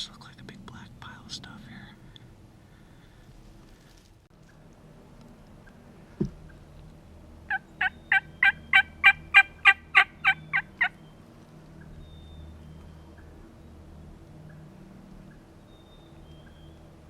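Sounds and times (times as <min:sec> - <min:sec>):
short thump: 0:06.2 - 0:06.4
turkey yelping: 0:07.5 - 0:11.0.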